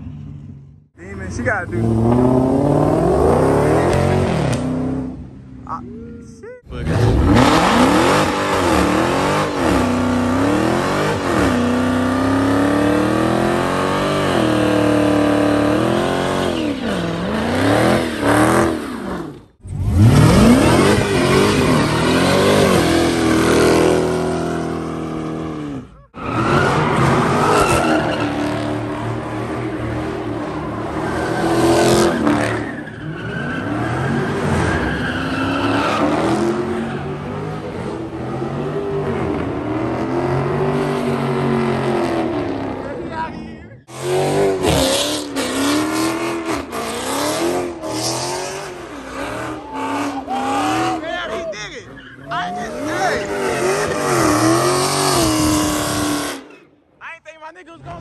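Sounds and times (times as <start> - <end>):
car engine revving hard: 1.3 - 5.2, 6.8 - 43.0, 43.9 - 51.4, 52.5 - 56.5
tyres squealing: 49.0 - 55.1.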